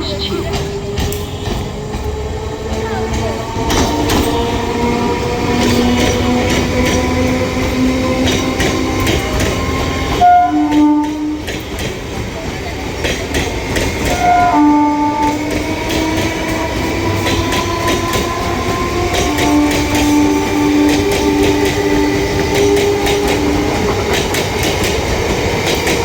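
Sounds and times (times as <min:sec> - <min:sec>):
train wheels clattering over rails: 0:00.0 - 0:26.0
train horn blasts: 0:01.0 - 0:01.8, 0:10.2 - 0:11.6, 0:14.1 - 0:23.9.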